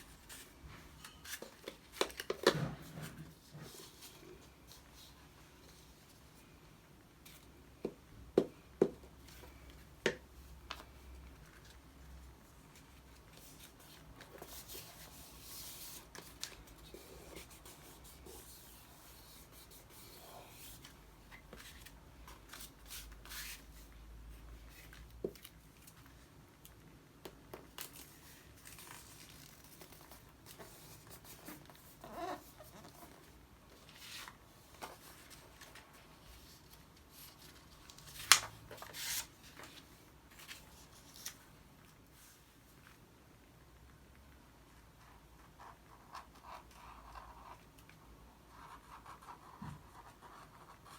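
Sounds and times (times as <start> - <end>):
paper rustling: 27.8 - 41.5.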